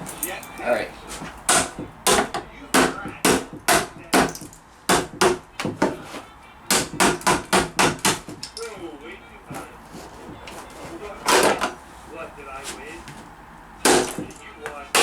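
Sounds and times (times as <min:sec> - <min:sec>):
hammer smashing speaker cabinet: 0:13.8 - 0:14.3.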